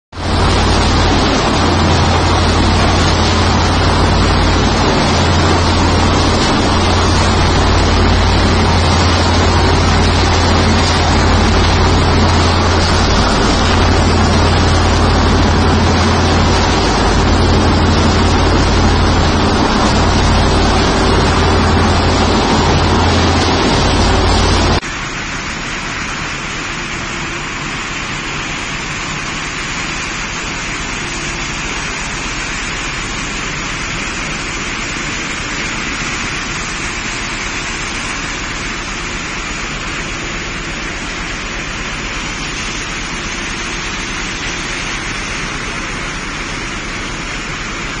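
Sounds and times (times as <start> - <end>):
low machine hum: 0.2 - 48.0
water churning through wet sand: 0.2 - 48.0.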